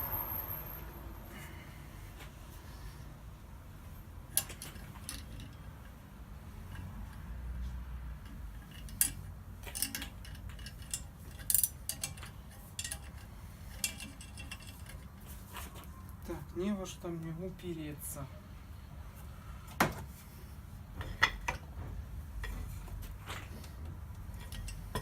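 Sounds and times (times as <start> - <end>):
metal tools clinking: 8.2 - 15.9, 22.4 - 25.0.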